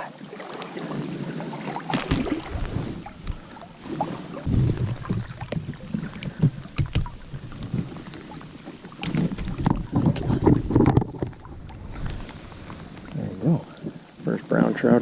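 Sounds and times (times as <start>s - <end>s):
water splashing and sloshing: 0.0s - 15.0s
wind rumble on microphone: 4.5s - 7.9s, 9.0s - 13.0s
handling knocks and clicks: 6.2s - 7.9s, 9.0s - 11.4s.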